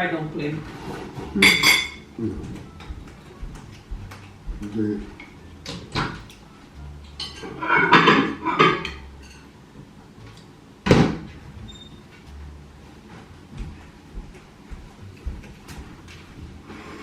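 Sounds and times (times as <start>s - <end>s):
cutlery clinking on plates: 0.9s - 3.0s, 7.1s - 9.5s.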